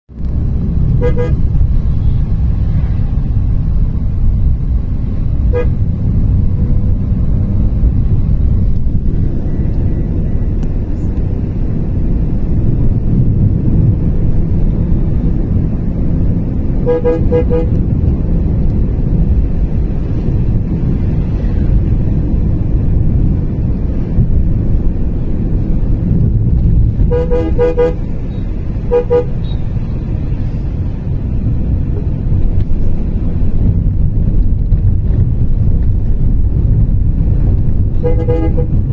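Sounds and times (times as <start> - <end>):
vehicle rumble: 0.1 - 38.9
wind: 0.1 - 38.9
vehicle horn tooting: 1.0 - 2.2, 5.5 - 5.8, 16.8 - 17.8, 27.1 - 29.6, 38.0 - 38.8.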